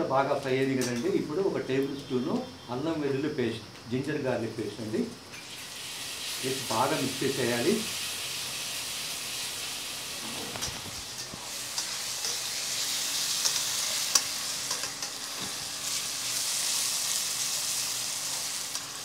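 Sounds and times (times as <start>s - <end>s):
onions sizzling in oil: 5.1s - 19.0s.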